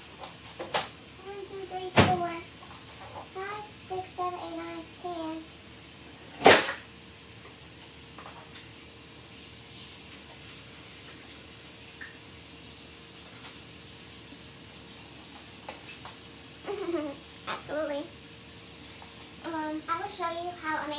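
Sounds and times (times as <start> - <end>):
steady hiss: 0.0 - 20.9
sharp clack: 6.4 - 6.9.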